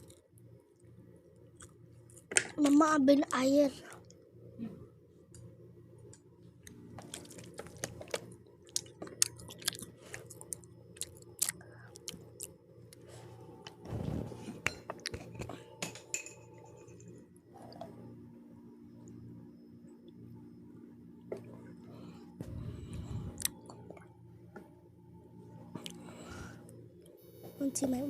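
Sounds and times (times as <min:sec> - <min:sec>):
faint steady hum: 0:00.0 - 0:28.0
chewing crunchy pizza crust: 0:01.5 - 0:02.4, 0:06.6 - 0:13.8, 0:22.9 - 0:24.1, 0:25.8 - 0:26.1.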